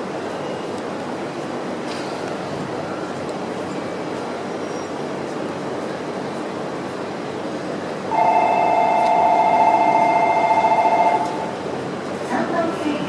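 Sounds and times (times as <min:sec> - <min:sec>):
electric train rumbling: 0:00.0 - 0:13.0
two-tone train horn: 0:08.1 - 0:11.5.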